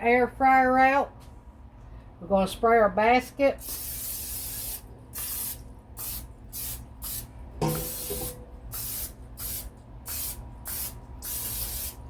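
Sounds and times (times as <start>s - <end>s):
oil sprayer hissing: 3.6s - 12.0s.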